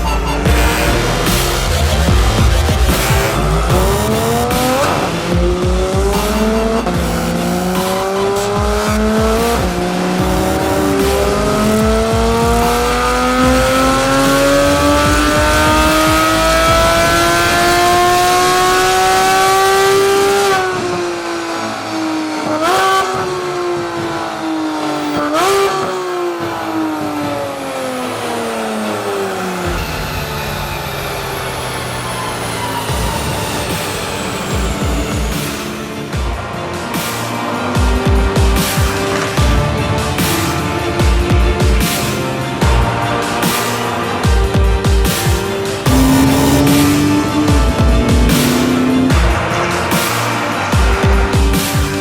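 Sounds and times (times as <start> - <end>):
engine throttle blips: 0.0 - 23.5, 45.1 - 50.6
sports car engine accelerating: 0.1 - 36.2, 38.0 - 52.0.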